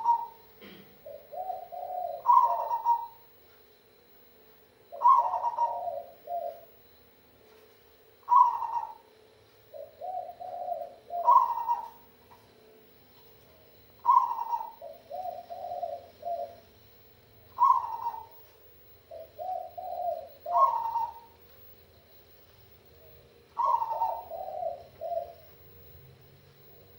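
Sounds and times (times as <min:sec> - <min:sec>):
dove cooing: 0:00.0 - 0:03.3, 0:04.9 - 0:07.0, 0:08.2 - 0:12.5, 0:13.7 - 0:18.5, 0:19.1 - 0:21.5, 0:22.8 - 0:26.9.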